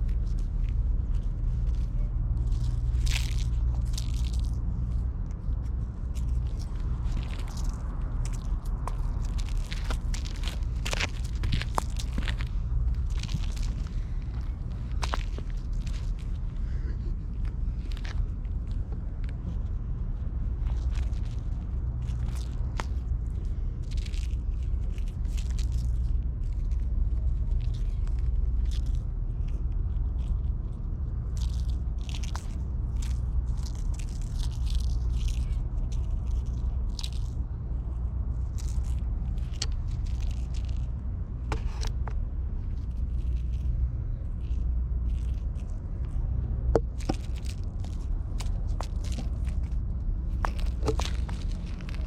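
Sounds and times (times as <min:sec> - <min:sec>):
steady low rumble: 0:00.0 - 0:52.0
scraping and rustling: 0:38.5 - 0:52.0.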